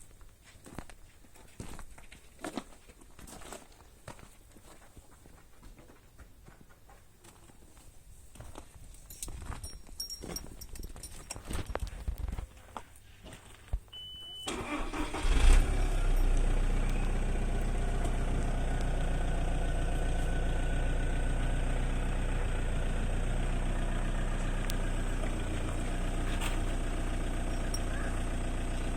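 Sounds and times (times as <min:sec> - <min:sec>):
short high beep: 0:14.0 - 0:14.8
car engine starting and idling: 0:14.0 - 0:28.9.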